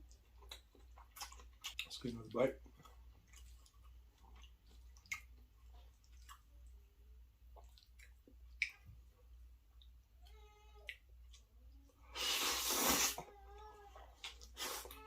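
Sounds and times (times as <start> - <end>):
wet chewing mouth clicks: 0.0 - 1.9, 2.8 - 6.5, 7.5 - 8.9
low steady hum: 0.0 - 12.2.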